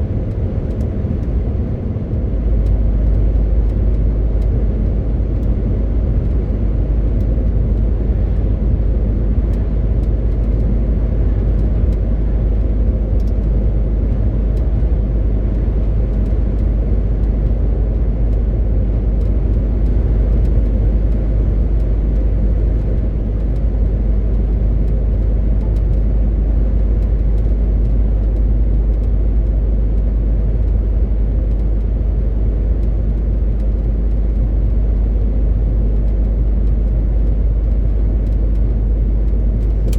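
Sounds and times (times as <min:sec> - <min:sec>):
truck diesel engine cruising: 0:00.0 - 0:03.4
road rumble: 0:00.0 - 0:39.9.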